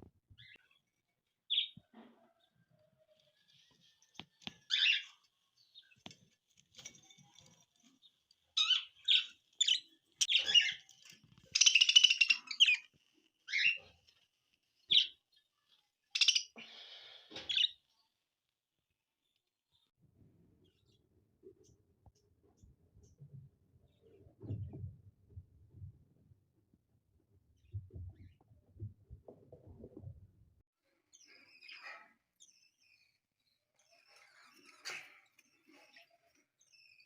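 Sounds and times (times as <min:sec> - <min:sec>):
budgerigars chirping: 0:11.6 - 0:12.8, 0:16.2 - 0:16.6.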